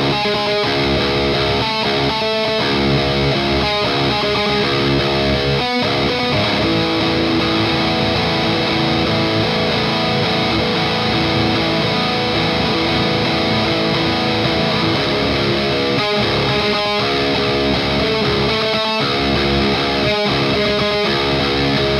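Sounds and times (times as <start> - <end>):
distorted electric guitar riffing: 0.0 - 21.9.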